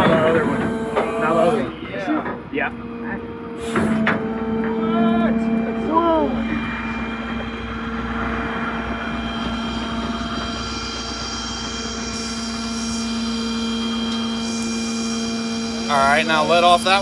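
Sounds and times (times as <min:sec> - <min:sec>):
diesel engine running: 0:00.0 - 0:17.0
hydraulic tow gear hum: 0:00.0 - 0:17.0.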